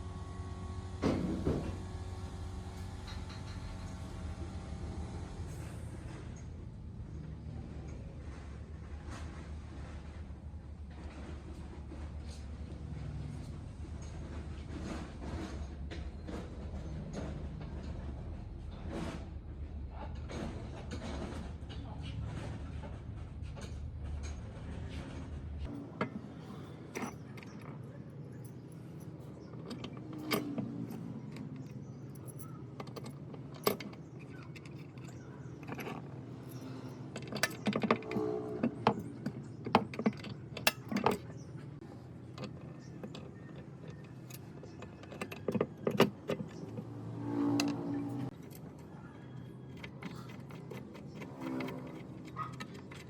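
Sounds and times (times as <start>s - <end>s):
metal tools clinking: 25.7s - 53.0s.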